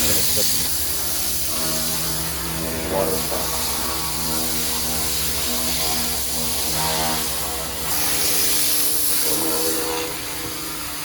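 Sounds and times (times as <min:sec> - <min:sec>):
hose nozzle spraying water: 0:00.0 - 0:02.0.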